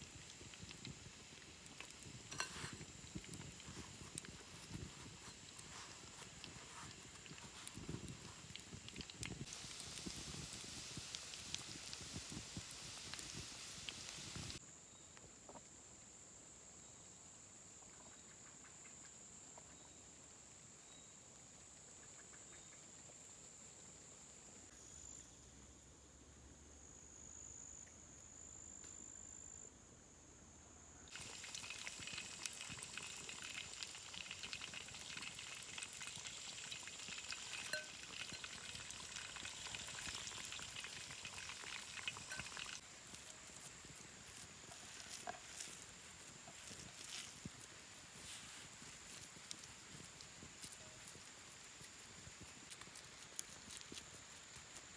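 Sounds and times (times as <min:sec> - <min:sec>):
food sizzling and crackling: 0:00.0 - 0:14.6, 0:31.1 - 0:54.9
thin steady high tone: 0:37.5 - 0:38.6.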